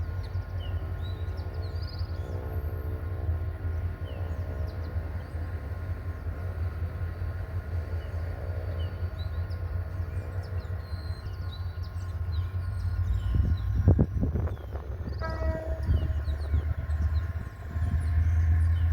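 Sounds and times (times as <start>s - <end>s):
locomotive engine rumbling: 0.0s - 18.9s.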